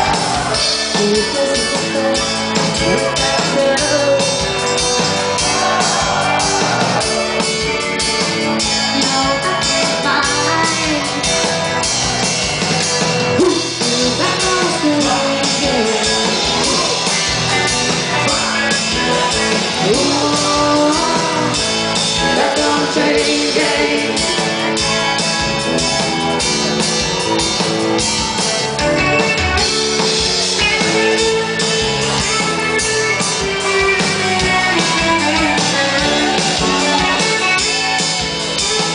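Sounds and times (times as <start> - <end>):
person singing: 0.0 - 4.8, 8.8 - 11.5, 13.4 - 17.5, 19.7 - 24.5
rock band playing: 0.0 - 38.9.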